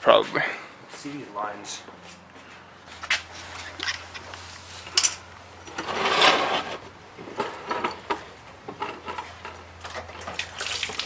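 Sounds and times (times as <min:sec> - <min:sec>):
tools and metal parts rattling: 0:03.6 - 0:06.4, 0:07.2 - 0:10.6
rasping metal scrape: 0:05.7 - 0:06.8.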